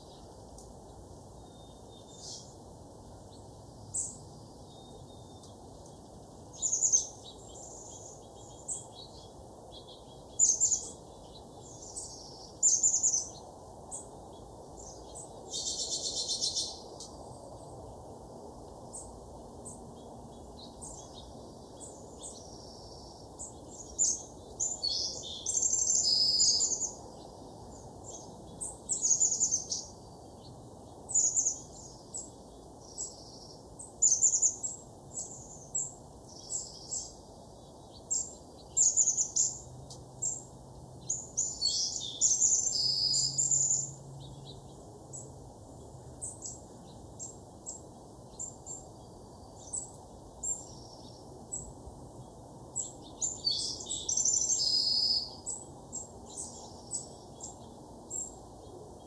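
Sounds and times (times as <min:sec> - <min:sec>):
faint background noise: 0:00.0 - 0:59.0
small birds chirping and twittering: 0:00.0 - 0:59.0.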